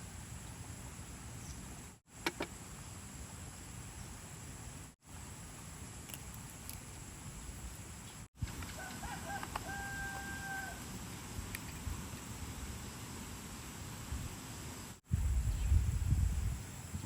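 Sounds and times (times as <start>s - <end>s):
steady outdoor hiss: 0.0s - 17.0s
rooster crowing: 8.7s - 10.9s.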